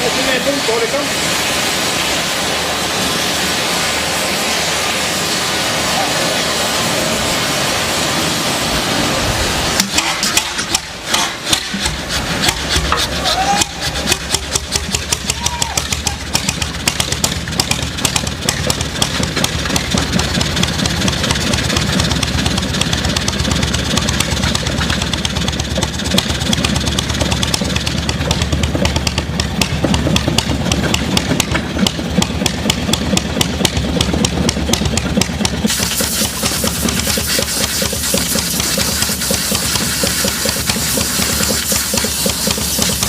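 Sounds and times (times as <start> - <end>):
rushing noise: 0.0 - 17.0
diesel engine firing: 6.6 - 43.0.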